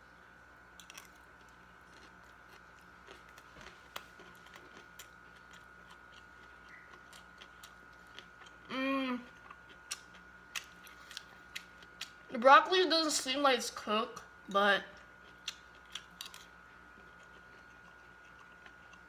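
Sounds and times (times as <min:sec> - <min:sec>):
quiet chewing: 0:00.8 - 0:12.2, 0:15.0 - 0:19.0
person humming: 0:08.7 - 0:09.3.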